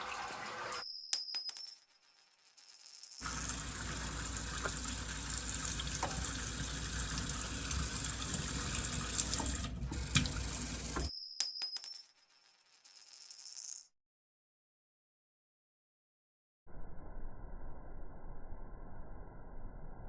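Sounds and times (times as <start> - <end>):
running water: 0.0 - 1.0, 3.2 - 11.0
faint high whine: 16.7 - 20.0.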